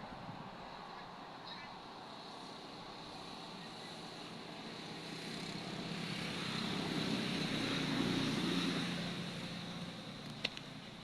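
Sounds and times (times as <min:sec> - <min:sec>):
engine passing by: 0:03.2 - 0:11.0.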